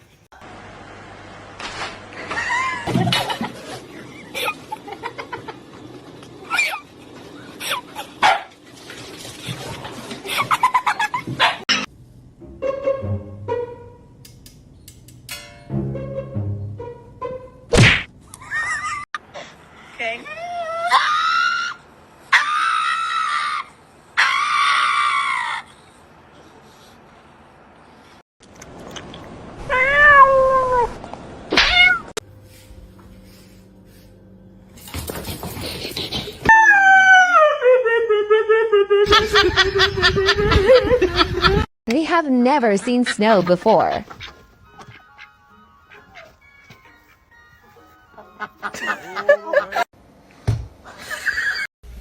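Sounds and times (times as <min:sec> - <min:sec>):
dog barking: 0:08.2 - 0:08.5, 0:11.4 - 0:11.6.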